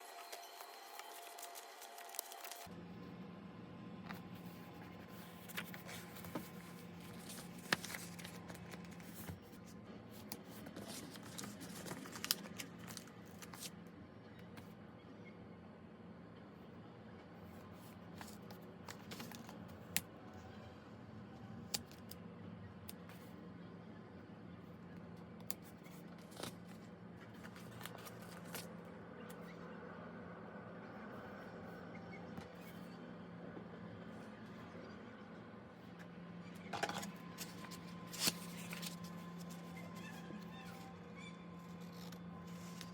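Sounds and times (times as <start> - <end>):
faint steady hum: 0.0 - 42.9
paper rustling and crinkling: 0.2 - 2.7, 4.4 - 13.7, 18.2 - 19.7, 25.6 - 28.7, 36.8 - 40.1.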